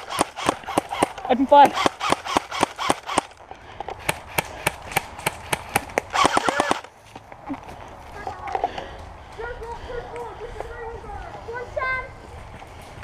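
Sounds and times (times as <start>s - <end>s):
airsoft guns firing single shots: 0.0s - 3.3s, 4.0s - 6.8s.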